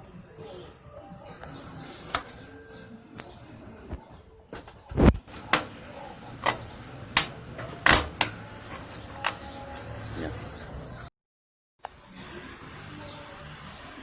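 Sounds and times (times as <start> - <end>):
parts clicking and knocking: 5.3 - 9.5.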